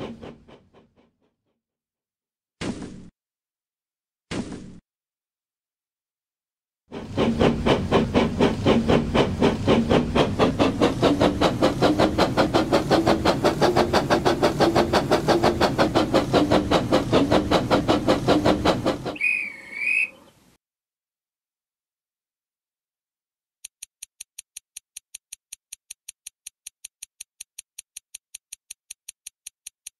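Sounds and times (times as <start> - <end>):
steam train chuffing: 0.0 - 1.0, 6.9 - 20.3
steam train whistle: 19.1 - 20.3.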